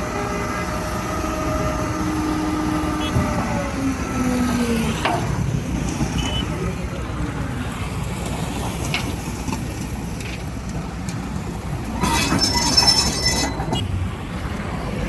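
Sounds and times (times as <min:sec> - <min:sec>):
heavy diesel machinery rumbling: 0:00.0 - 0:15.0
high metallic screech: 0:12.0 - 0:13.8.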